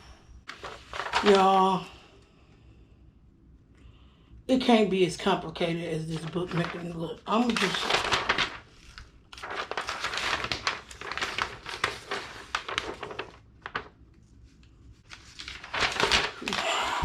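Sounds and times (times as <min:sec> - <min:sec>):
paper and packaging rustling: 0:00.5 - 0:01.9, 0:05.9 - 0:17.0.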